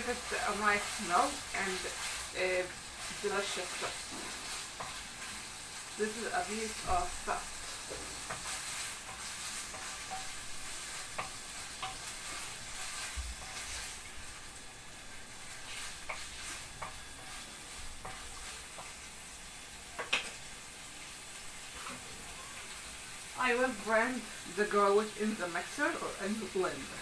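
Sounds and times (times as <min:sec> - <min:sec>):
meat sizzling in a frying pan: 0:00.0 - 0:27.0
wooden spoon clicking and scraping: 0:07.7 - 0:13.9, 0:18.0 - 0:19.0.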